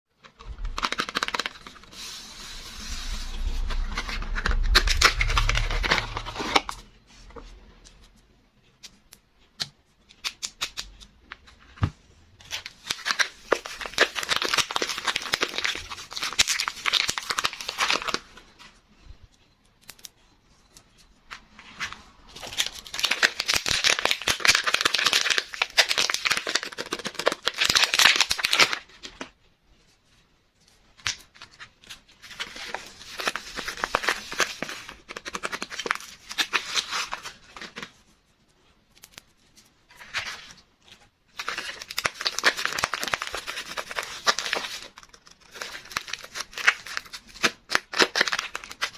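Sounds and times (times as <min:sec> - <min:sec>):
wrapper tearing and crinkling: 0:12.5 - 0:18.3, 0:22.4 - 0:28.9, 0:31.8 - 0:37.9, 0:41.3 - 0:48.9.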